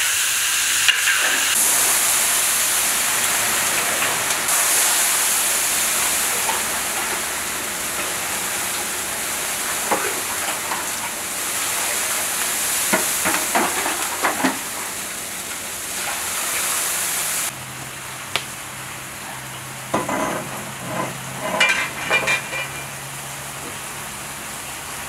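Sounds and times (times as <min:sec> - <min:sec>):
carrots sizzling in oil: 0:00.0 - 0:17.6.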